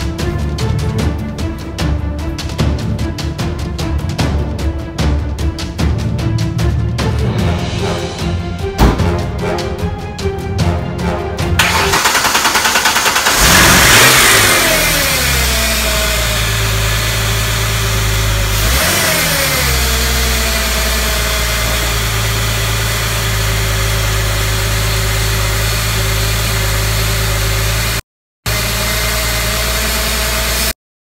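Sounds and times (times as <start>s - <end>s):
car engine cranking and idling: 11.6s - 30.7s.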